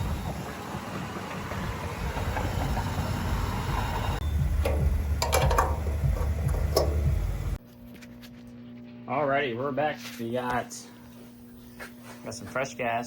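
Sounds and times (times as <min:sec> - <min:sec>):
car engine and road noise: 0:00.0 - 0:07.6.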